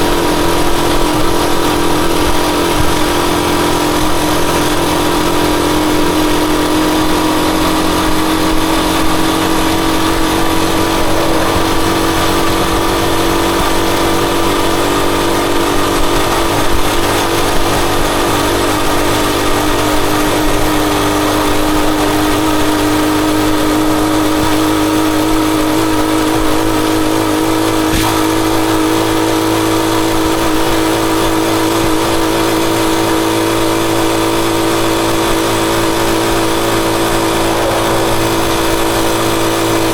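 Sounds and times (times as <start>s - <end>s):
motorcycle engine running: 0.0s - 39.9s
even rushing noise: 7.7s - 15.6s, 35.4s - 39.9s.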